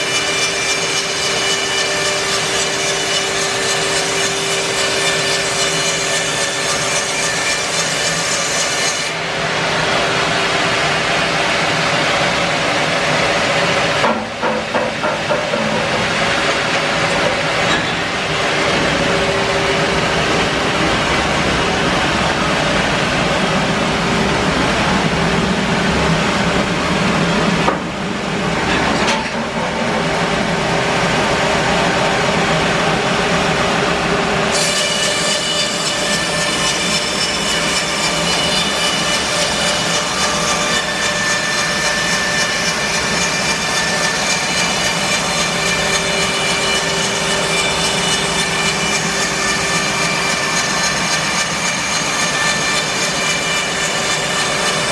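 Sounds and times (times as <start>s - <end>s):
bandsaw mill cutting log: 0.0s - 54.9s
high whine: 9.2s - 34.6s.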